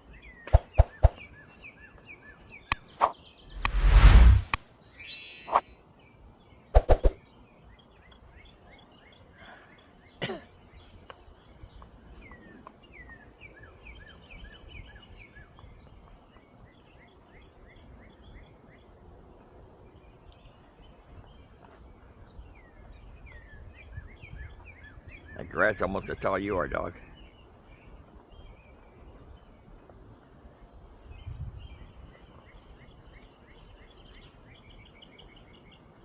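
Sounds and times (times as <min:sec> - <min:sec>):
birds chirping and singing: 0:00.0 - 0:03.6.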